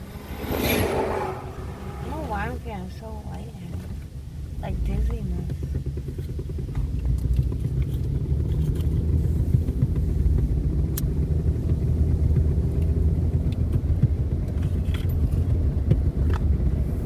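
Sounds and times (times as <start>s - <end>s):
road and engine rumble in cabin: 0.0s - 17.0s
small clicks and rattles: 12.7s - 16.5s.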